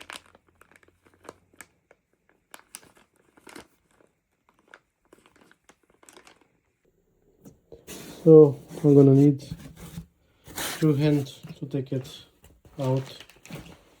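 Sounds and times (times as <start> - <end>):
packaging crinkling and clicking: 0.0 - 6.6, 12.7 - 14.0.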